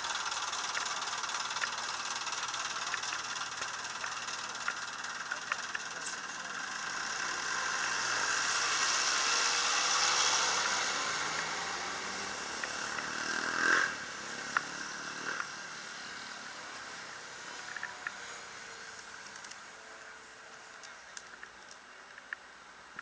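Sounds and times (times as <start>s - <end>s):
sharp clicks: 0.5s - 6.2s
vehicle engine driving past: 6.2s - 16.4s.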